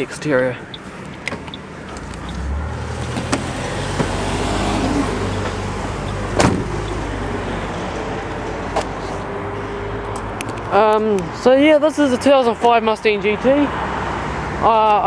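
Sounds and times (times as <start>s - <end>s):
car engine rumbling: 0.0s - 11.2s
light clicks: 0.6s - 7.0s.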